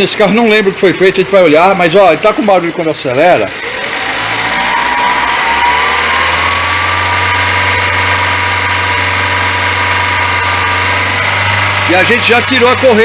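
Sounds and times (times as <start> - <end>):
car engine running at raised revs: 0.0 - 13.0
whining noise: 0.0 - 13.0.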